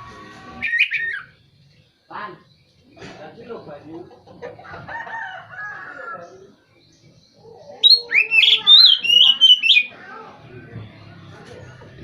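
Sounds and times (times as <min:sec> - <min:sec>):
bird singing whistled notes: 0:00.6 - 0:01.4, 0:07.8 - 0:10.0.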